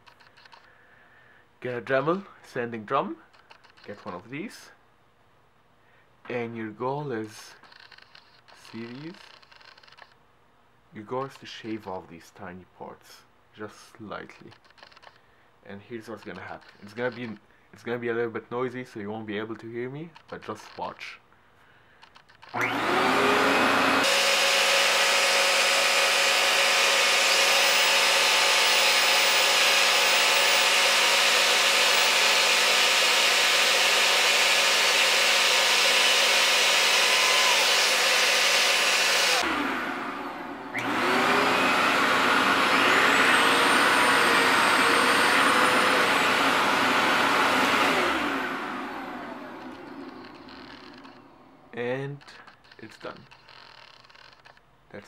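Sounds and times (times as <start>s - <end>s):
rotary tool sanding with high whine: 22.2s - 51.6s, 52.3s - 54.6s.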